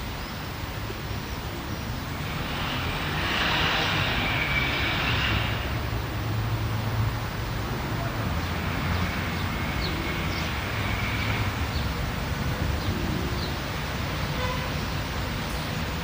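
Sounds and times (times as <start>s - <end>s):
distant traffic rumble: 0.0s - 16.0s.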